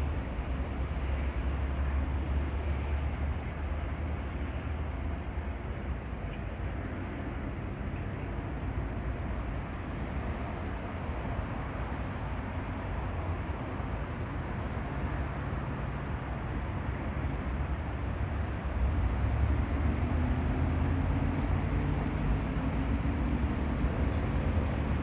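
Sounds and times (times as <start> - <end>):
distant engine rumble: 18.2 - 25.0.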